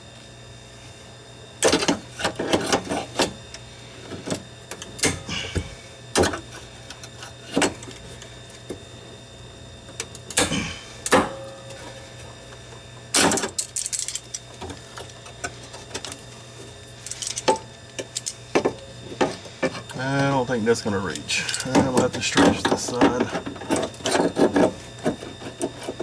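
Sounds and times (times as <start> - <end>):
steady low hum: 0.0 - 26.0
metal tools clanking: 17.0 - 18.8, 21.1 - 24.7.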